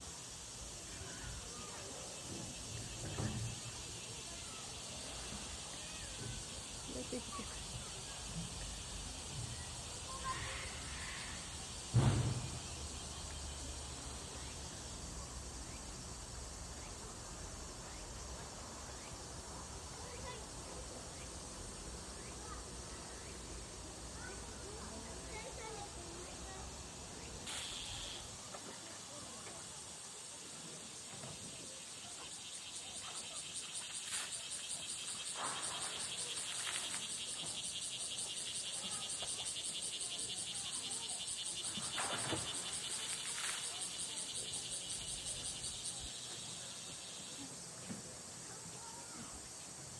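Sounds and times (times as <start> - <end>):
cicadas pulsing chorus: 0.0 - 49.9
insects: 0.0 - 49.9
brief rushing sounds: 11.9 - 12.9
low thump: 11.9 - 12.9
faint high chirps: 27.2 - 28.6.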